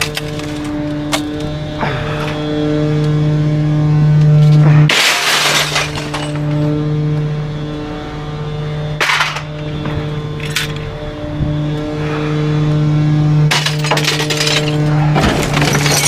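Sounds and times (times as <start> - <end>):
items crashing and breaking: 0.0 - 0.8, 4.9 - 6.6, 13.5 - 16.0
hydraulic packer humming: 0.0 - 16.0.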